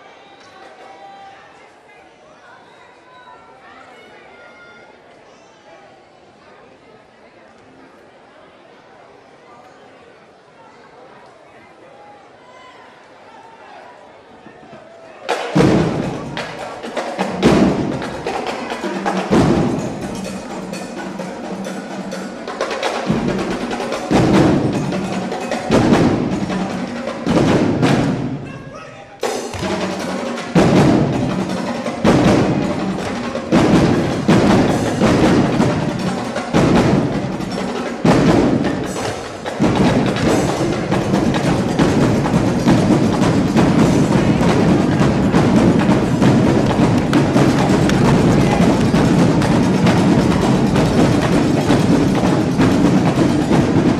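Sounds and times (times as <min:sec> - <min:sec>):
percussion music: 0:15.3 - 0:53.9.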